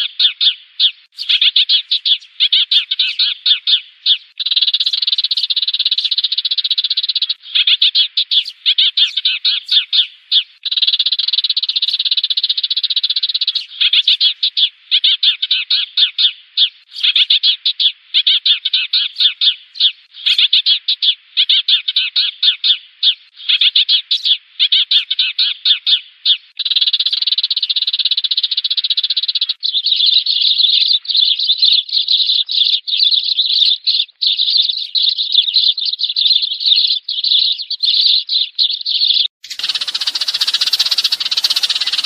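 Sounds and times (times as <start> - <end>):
sparrows chirping: 0.0 - 42.0.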